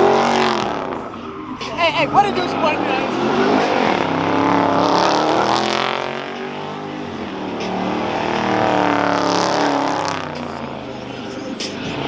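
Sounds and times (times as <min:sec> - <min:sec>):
car engine revving hard: 0:03.2 - 0:10.9.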